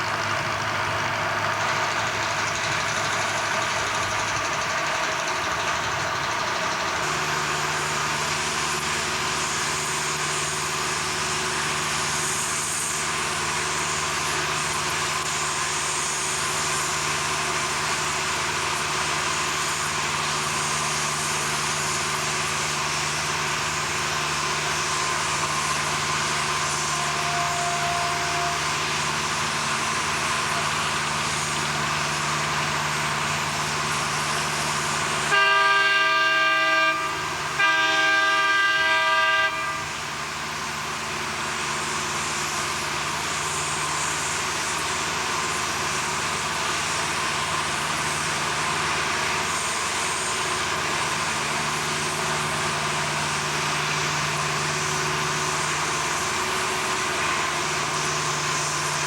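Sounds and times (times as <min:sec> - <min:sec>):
loud multi-tone horn blasts: 0:26.0 - 0:29.2, 0:35.2 - 0:40.2.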